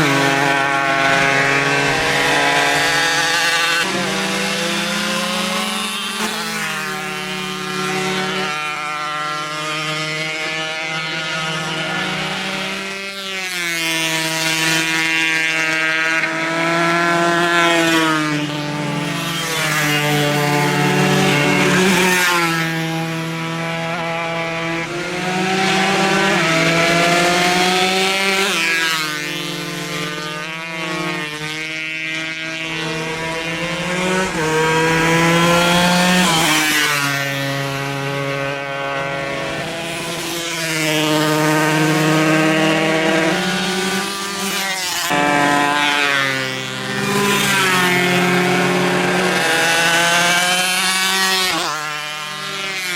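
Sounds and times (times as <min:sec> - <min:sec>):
racing motorcycles at full throttle: 0:00.0 - 0:52.9.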